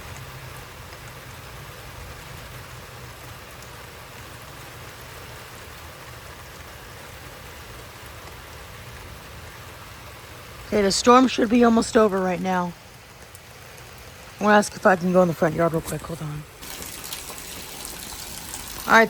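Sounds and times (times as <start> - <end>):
heavy rain pouring: 0.0 - 19.0
drops ticking: 10.7 - 19.0.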